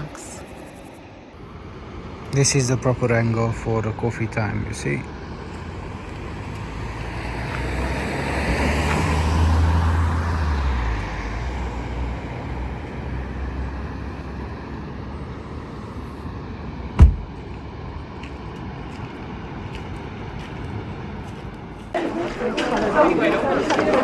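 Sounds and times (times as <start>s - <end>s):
vehicle driving past: 1.4s - 21.3s
sharp thump: 17.0s - 17.4s.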